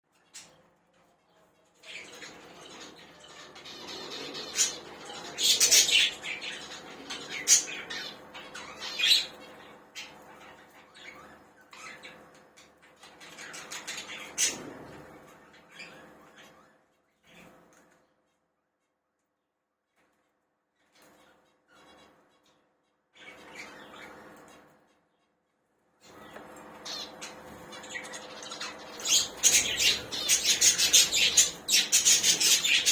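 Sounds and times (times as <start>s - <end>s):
budgerigars chattering: 3.6s - 9.4s, 26.8s - 32.9s.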